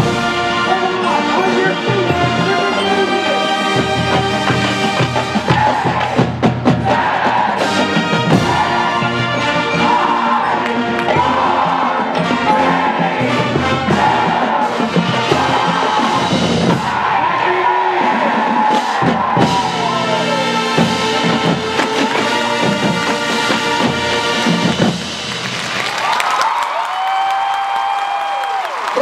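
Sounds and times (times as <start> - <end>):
marching band playing: 0.0 - 26.1.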